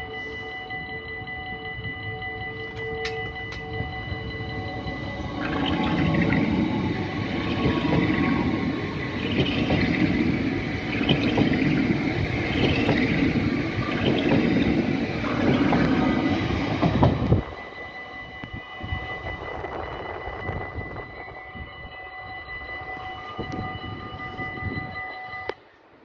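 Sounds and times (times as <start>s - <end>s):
train wheels rumbling on track: 1.8s - 25.0s.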